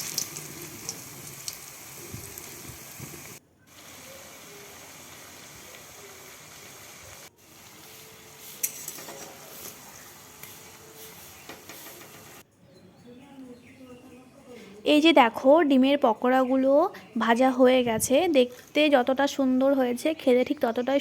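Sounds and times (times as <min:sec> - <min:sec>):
frying in hot oil: 0:00.0 - 0:12.4.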